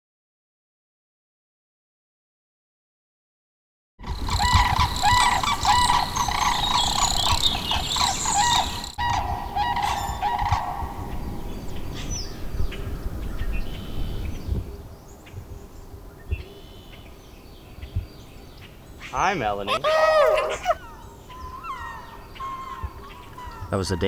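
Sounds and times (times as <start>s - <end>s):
flock of birds squawking: 4.0s - 11.2s, 19.1s - 24.0s.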